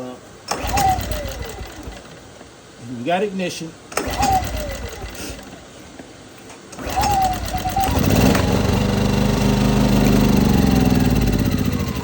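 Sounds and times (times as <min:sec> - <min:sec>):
generator engine running: 0:00.5 - 0:02.3, 0:04.0 - 0:05.8, 0:06.8 - 0:12.0
recoil starter pull: 0:00.5 - 0:02.3, 0:03.9 - 0:05.7, 0:06.7 - 0:12.0.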